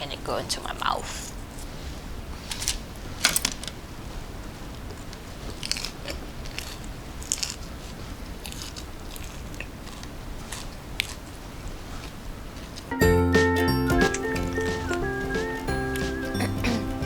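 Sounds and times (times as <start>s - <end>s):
chewing food: 4.7s - 12.9s.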